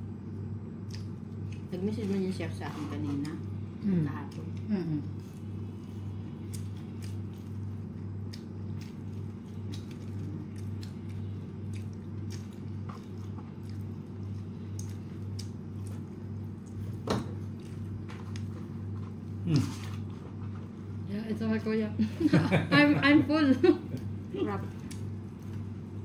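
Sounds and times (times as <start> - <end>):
pulsing low hum: 0.0 - 26.0
person chewing food: 0.8 - 1.7, 4.3 - 21.0, 23.9 - 26.0.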